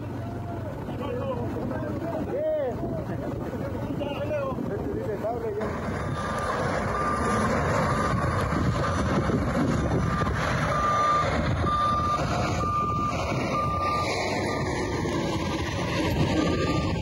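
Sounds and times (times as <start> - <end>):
diesel engine running: 0.0 - 17.0
reversing alarm beeping: 6.1 - 8.3, 10.0 - 17.0.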